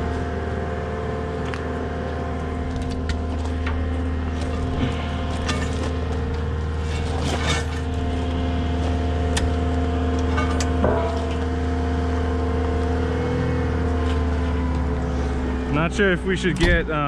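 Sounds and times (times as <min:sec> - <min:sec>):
diesel engine idling: 0:00.0 - 0:17.0
metal knocks and clinks: 0:10.2 - 0:11.5.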